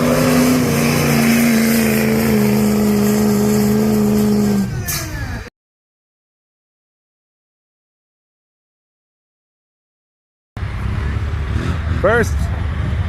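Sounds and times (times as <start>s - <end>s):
diesel truck engine at full throttle: 0.0s - 5.5s, 10.6s - 13.0s.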